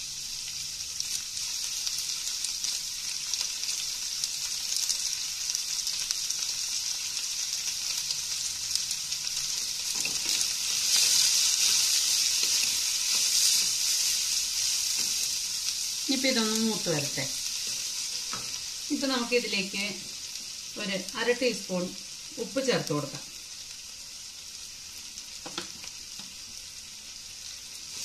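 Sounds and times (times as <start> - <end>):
shallots sizzling in hot oil: 0.0 - 28.0
wooden spatula stirring: 9.9 - 15.8.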